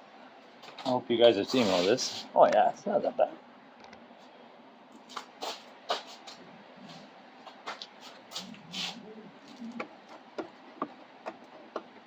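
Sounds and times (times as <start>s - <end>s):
faint low murmur: 6.3s - 10.8s.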